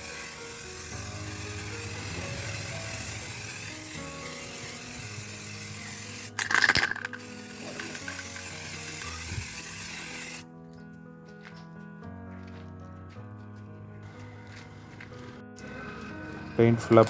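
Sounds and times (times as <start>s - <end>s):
spray can rattle: 0.0s - 10.4s
aerosol spray paint hissing: 0.0s - 10.5s
background music: 0.0s - 17.0s.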